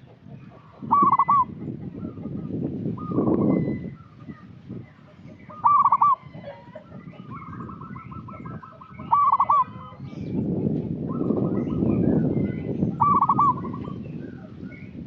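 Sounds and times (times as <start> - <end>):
dove cooing: 0.6 - 2.4, 5.4 - 10.1, 13.0 - 14.0.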